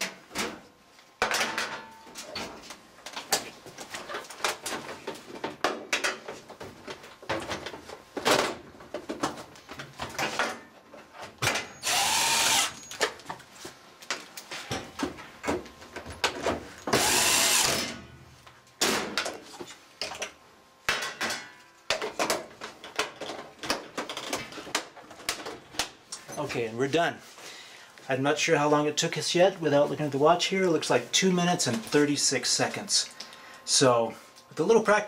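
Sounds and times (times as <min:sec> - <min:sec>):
power driver driving screws: 0:11.8 - 0:12.9, 0:16.9 - 0:17.9.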